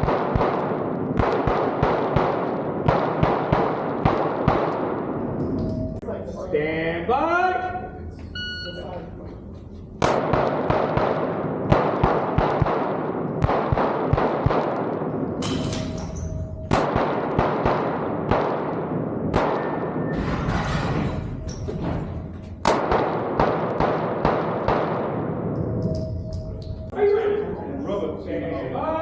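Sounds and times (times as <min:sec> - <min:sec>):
pistol shots with echo: 0:00.0 - 0:05.4, 0:10.0 - 0:20.2, 0:22.6 - 0:25.8.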